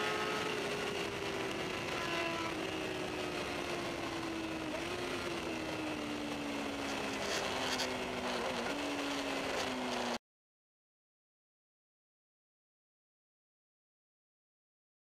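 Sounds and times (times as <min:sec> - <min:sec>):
motorcycle engine at speed: 0:00.0 - 0:10.2.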